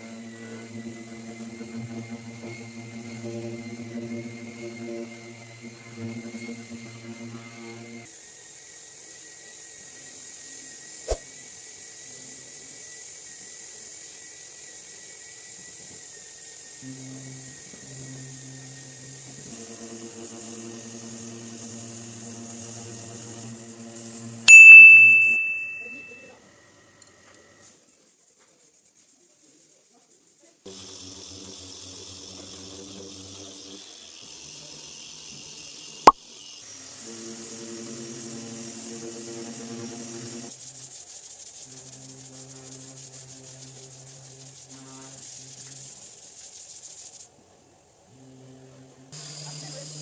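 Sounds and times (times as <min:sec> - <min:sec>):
faint high whine: 0:24.5 - 0:26.2.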